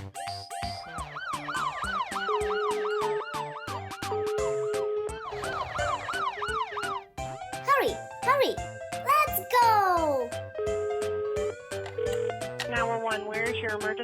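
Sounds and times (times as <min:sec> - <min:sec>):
children's music with a beat: 0:07.7 - 0:10.4.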